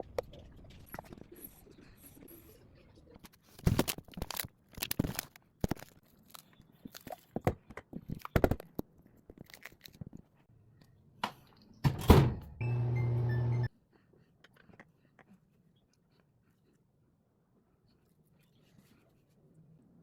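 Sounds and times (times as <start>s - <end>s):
microwave door shutting: 11.8s - 13.7s
microwave oven humming: 11.9s - 13.7s.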